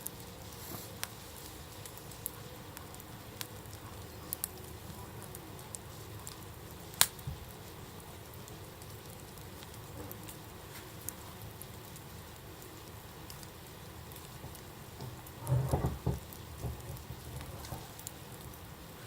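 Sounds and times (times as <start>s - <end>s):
campfire hiss and crackles: 0.0s - 19.0s
loud fire pop: 14.2s - 18.1s.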